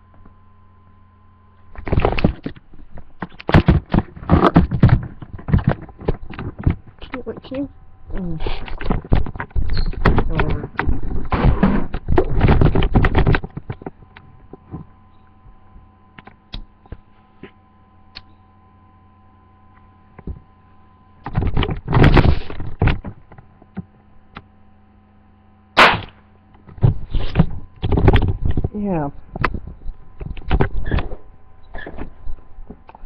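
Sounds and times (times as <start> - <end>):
low steady hum: 0.0 - 33.0
firecracker pop: 25.8 - 26.2.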